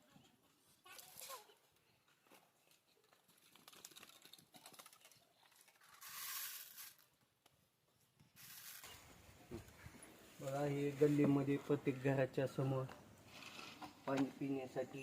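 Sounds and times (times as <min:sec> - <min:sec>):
soft rustle: 0:08.3 - 0:11.8.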